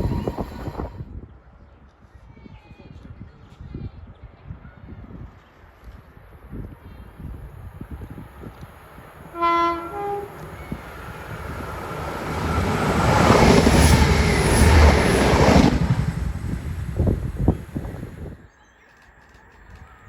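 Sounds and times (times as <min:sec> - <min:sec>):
train running past: 0:00.0 - 0:01.0, 0:07.1 - 0:18.4
two-tone train horn: 0:09.2 - 0:15.2.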